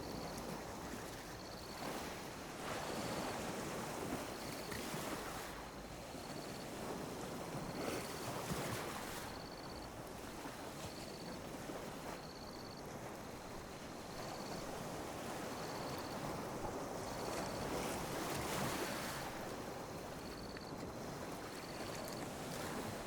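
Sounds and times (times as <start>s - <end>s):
sea waves lapping on a beach: 0.0s - 23.0s.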